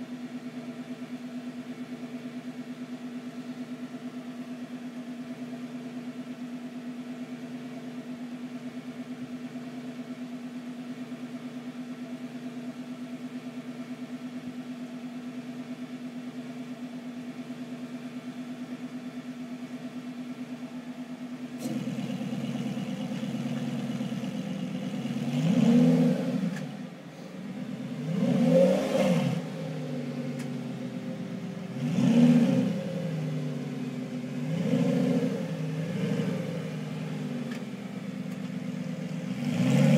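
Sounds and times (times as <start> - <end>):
car engine idling: 0.0 - 39.9
car engine revving: 21.6 - 39.9.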